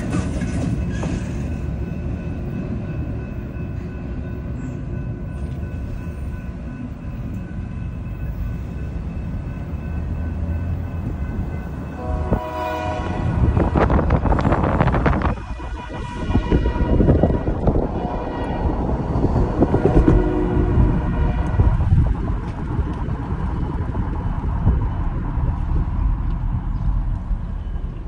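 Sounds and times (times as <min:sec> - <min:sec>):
train rumbling: 0:00.0 - 0:28.0
wind buffeting microphone: 0:08.1 - 0:28.0
locomotive horn blast: 0:11.9 - 0:21.9.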